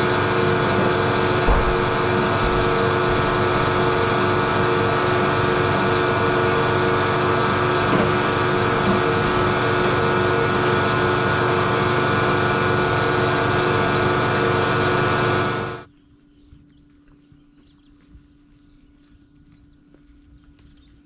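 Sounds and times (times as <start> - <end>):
machine humming: 0.0 - 15.9.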